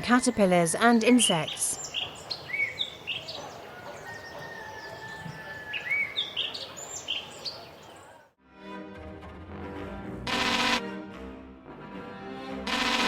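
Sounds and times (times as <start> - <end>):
small songbirds chirping: 0.0 - 8.3
music: 8.4 - 13.0.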